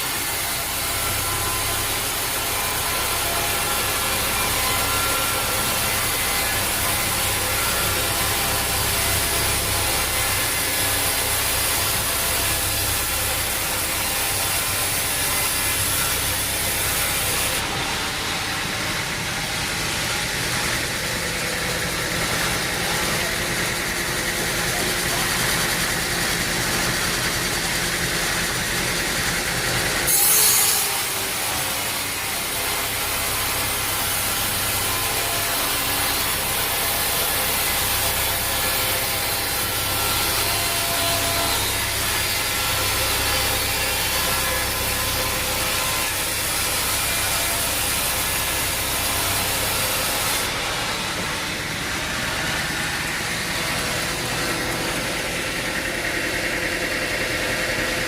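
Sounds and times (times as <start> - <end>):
saw cutting through log: 0.0 - 58.0.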